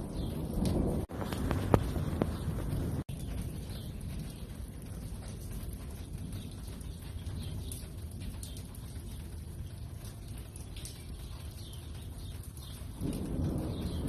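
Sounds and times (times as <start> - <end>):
thunder rolling: 0.0 - 6.3, 12.9 - 14.0
steady low rumble: 0.6 - 6.5.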